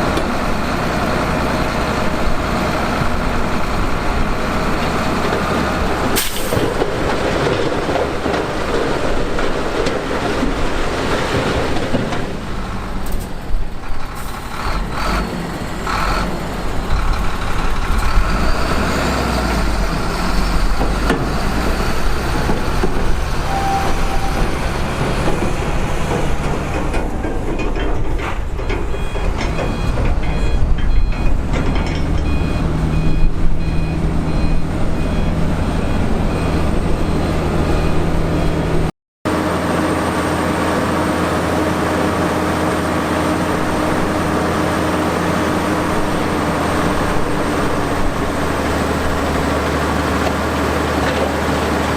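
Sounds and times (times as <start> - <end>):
heavy diesel machinery running: 0.0 - 51.9
backup alarm beeping: 23.5 - 25.5, 28.6 - 31.4, 32.2 - 38.2.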